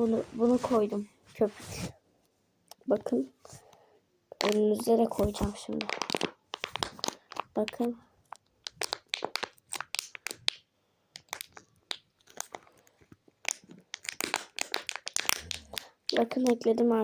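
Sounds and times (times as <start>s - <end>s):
slime crackling and popping: 4.4s - 16.8s.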